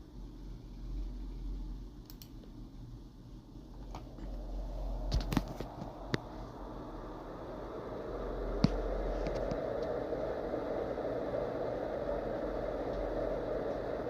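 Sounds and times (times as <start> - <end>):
exhaust fan rushing air: 0.0 - 14.0
low hum: 0.0 - 14.0
sharp clicks: 2.0 - 2.4.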